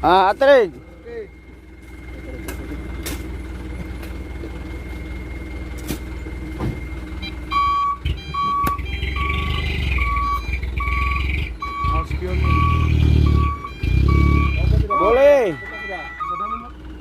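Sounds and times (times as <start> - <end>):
diesel engine running: 0.0 - 17.0
reversing alarm beeping: 6.7 - 16.9.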